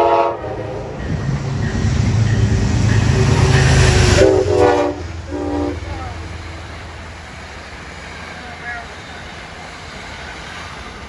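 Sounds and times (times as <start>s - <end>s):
train chime horn: 0.0s - 7.1s
train passing with rumble: 0.0s - 11.0s.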